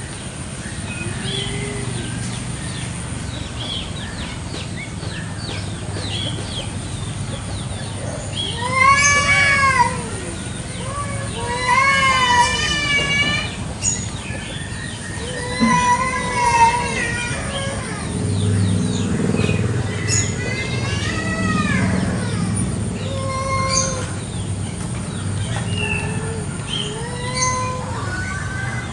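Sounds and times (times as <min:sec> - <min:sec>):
cats yowling: 0:07.9 - 0:13.9, 0:15.1 - 0:24.4, 0:25.4 - 0:28.9.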